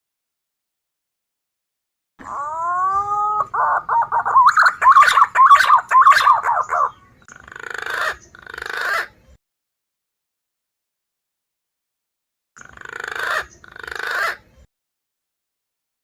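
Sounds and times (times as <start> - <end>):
pigeon whistling song: 2.3 - 9.1.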